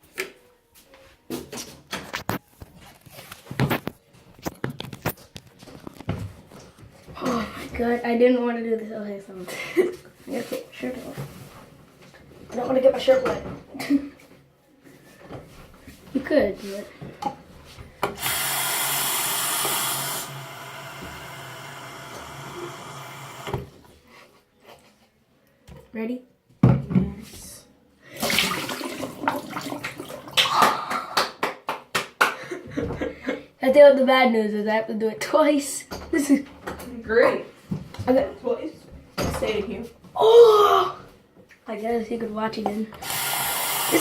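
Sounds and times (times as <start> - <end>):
water running from a tap: 18.2 - 23.5, 28.2 - 30.4.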